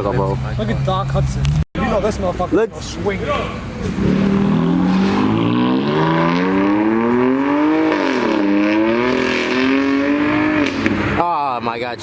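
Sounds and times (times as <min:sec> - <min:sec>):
car engine accelerating hard: 0:03.6 - 0:11.2.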